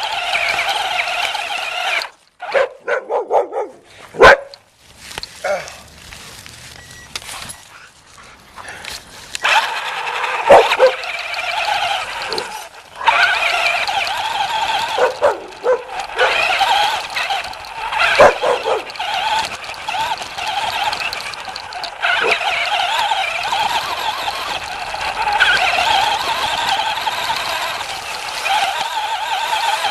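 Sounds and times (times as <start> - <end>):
puppy barking and yipping: 2.4 - 4.6, 9.4 - 17.0, 18.0 - 19.4, 22.0 - 22.5.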